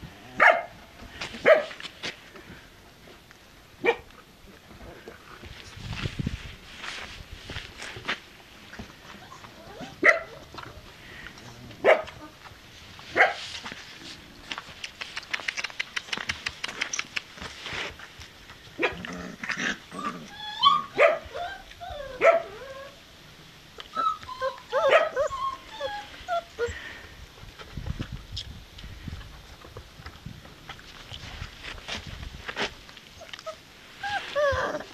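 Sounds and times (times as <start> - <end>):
puppies yipping and whimpering: 9.2 - 10.4, 19.9 - 23.0, 23.9 - 26.9, 33.1 - 34.9
quick clicking: 14.8 - 17.4.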